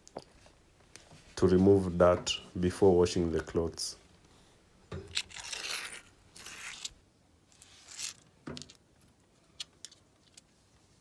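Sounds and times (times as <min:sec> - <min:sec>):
rustling or scraping: 0:05.0 - 0:08.8.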